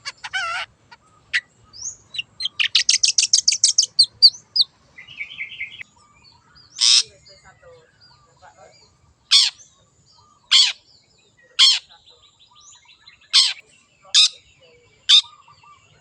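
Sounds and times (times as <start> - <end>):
soft bird twittering: 0.0 - 16.0
shrike harsh calls: 6.8 - 7.2.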